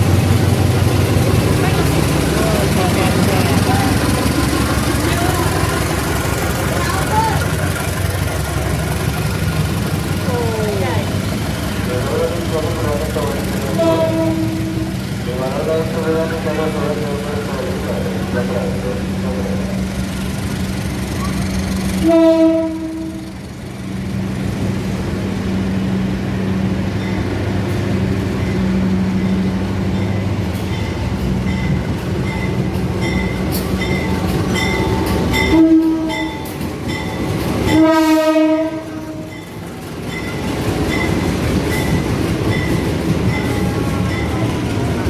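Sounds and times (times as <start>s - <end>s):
train rumbling: 0.0s - 45.0s
train horn blasts: 13.6s - 15.0s, 22.0s - 23.3s, 35.4s - 36.4s, 37.7s - 39.4s.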